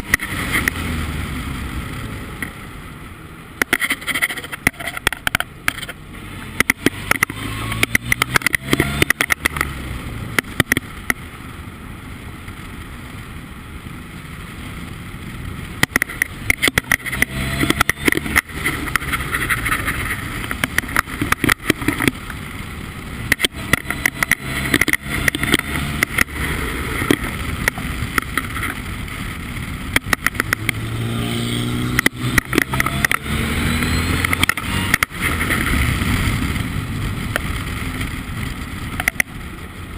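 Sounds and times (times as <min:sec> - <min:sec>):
race car engine running: 0:03.5 - 0:11.2, 0:15.6 - 0:39.9
sharp crackles and knocks: 0:03.6 - 0:11.2, 0:15.7 - 0:22.6, 0:23.2 - 0:39.6.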